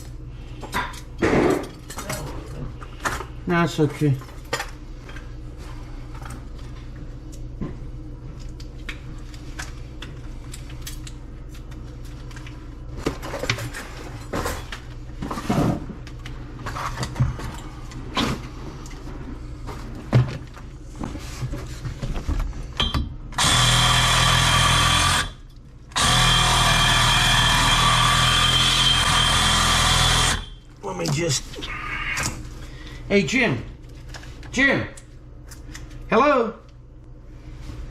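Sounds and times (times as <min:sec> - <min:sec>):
power tool running: 0:23.4 - 0:30.6.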